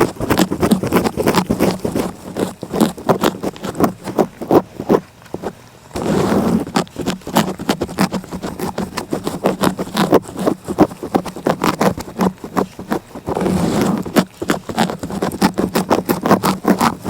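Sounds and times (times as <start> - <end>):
cat licking: 0.0 - 5.6, 6.6 - 17.0
rustling against microphone: 0.0 - 17.0.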